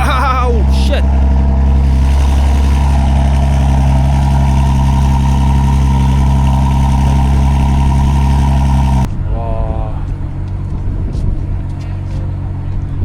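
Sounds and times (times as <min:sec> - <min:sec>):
car engine running loudly: 0:00.0 - 0:09.1.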